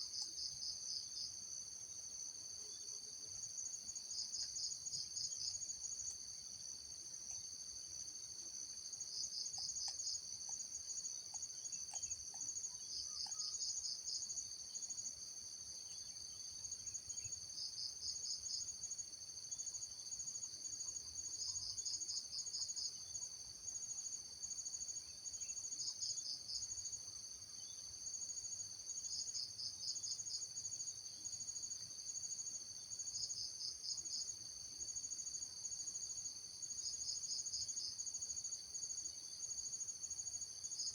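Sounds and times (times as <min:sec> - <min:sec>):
insect pulsed trill: 0:08.9 - 0:27.0.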